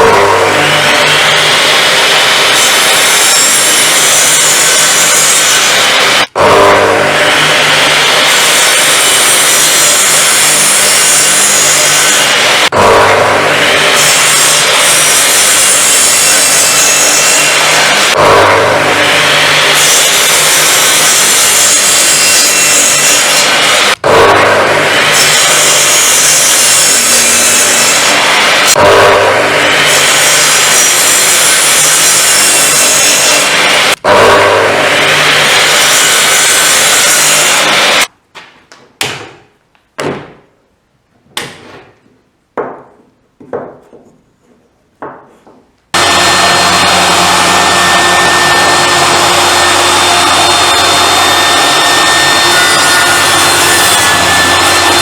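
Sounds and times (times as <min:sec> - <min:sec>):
table saw cutting wood: 0:00.0 - 0:38.1, 0:45.9 - 0:55.0
sharp knocks of wood: 0:38.4 - 0:40.5.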